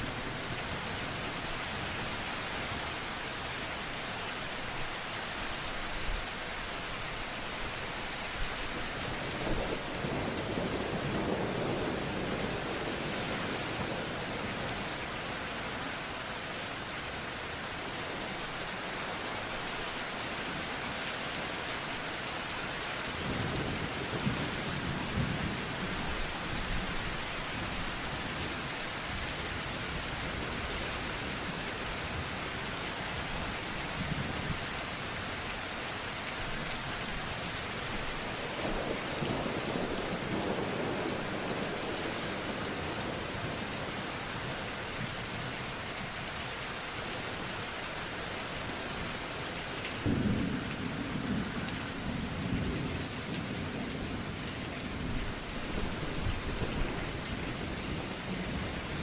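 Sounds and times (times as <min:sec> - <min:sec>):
steady rain falling: 0:00.0 - 0:59.0
low rolls of thunder: 0:50.0 - 0:54.3.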